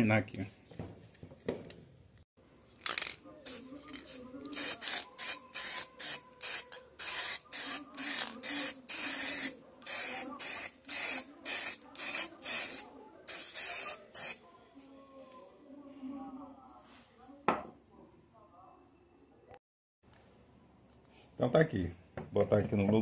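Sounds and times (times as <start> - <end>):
spray paint can hissing: 3.4 - 14.4.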